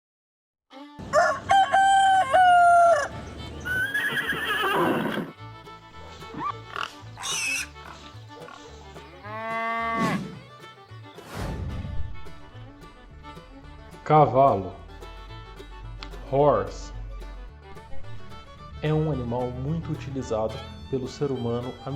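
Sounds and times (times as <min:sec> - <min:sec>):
farm animal calls: 0:01.6 - 0:10.5.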